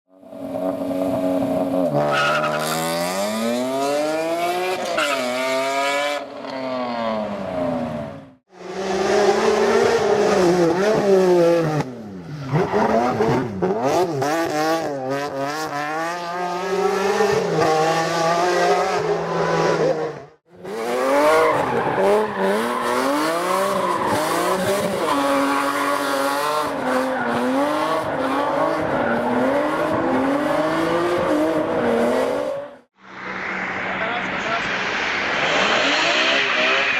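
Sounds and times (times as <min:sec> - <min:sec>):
car engine revving hard: 0:35.3 - 0:36.9.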